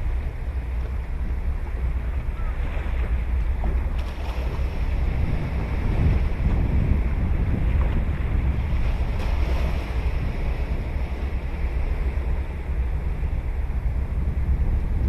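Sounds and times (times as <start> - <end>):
wind rumble on microphone: 0.0 - 15.0
surf washing onto beach: 2.6 - 11.3.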